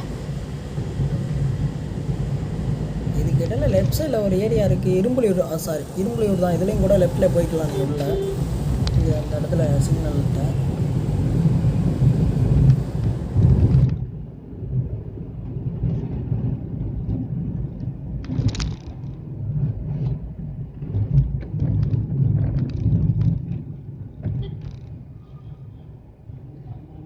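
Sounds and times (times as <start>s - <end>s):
car engine and road rumble: 0.0s - 14.6s
hiss: 5.3s - 13.8s.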